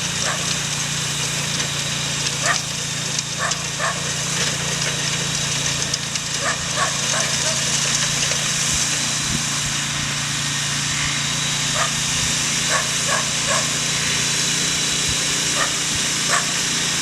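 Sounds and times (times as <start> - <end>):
power tiller engine running: 0.0 - 17.0
dog barking: 3.4 - 4.0, 6.4 - 7.6, 11.8 - 12.0, 12.7 - 13.7, 15.6 - 16.5.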